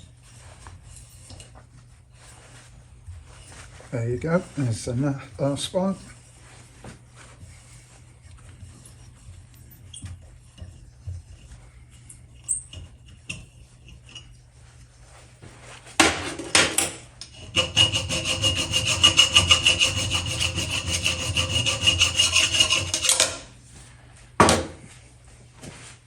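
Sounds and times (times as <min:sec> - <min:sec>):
metal rasping strokes: 0:17.2 - 0:23.6.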